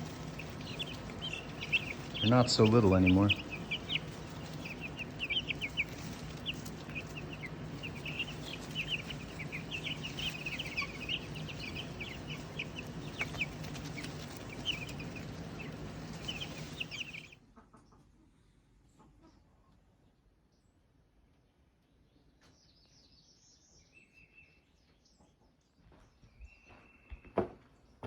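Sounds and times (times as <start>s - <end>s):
low hum: 0.0s - 17.4s
chickens chirping and peeping: 0.0s - 19.5s.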